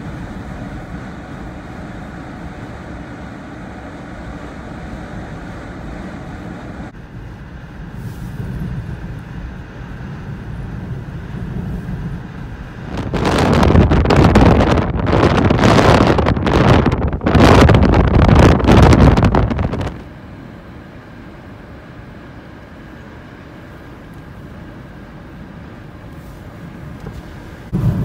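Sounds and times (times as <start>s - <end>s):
blizzard wind: 0.0s - 28.0s
vehicle low rumble: 0.0s - 28.0s
wind gust hitting microphone: 6.8s - 20.1s, 26.7s - 28.0s.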